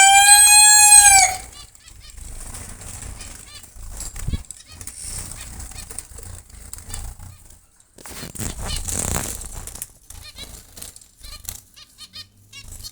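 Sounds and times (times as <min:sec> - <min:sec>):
rustling wings: 0:00.0 - 0:12.9.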